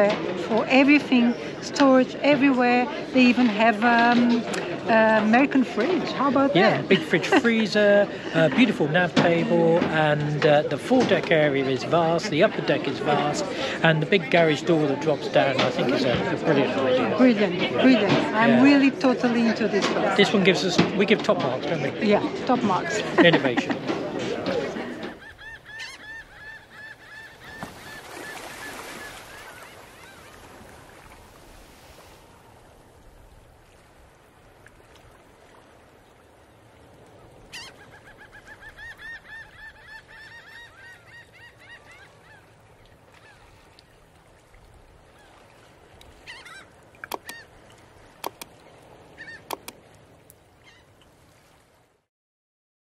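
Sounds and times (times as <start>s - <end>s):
bird calls: 23.0s - 31.1s, 37.2s - 44.0s, 46.1s - 48.5s, 49.1s - 49.8s, 50.6s - 51.0s
sharp clicks: 47.0s - 47.4s, 48.2s - 48.5s, 49.4s - 49.8s.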